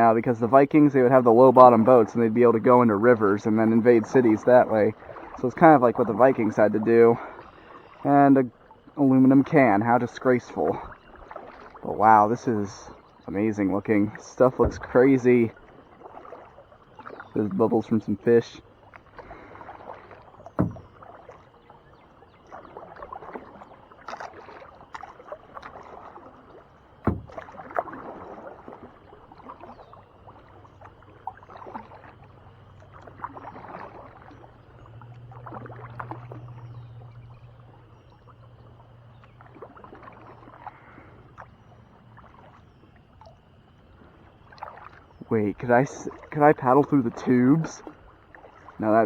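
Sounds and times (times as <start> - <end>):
paddle splashing in water: 0.0 - 49.0
sharp knocks: 20.6 - 20.9, 27.0 - 27.4.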